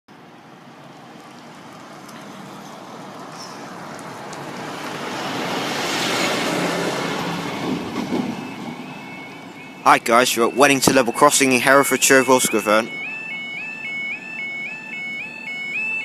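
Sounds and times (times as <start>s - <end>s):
vehicle passing by: 0.6s - 11.8s.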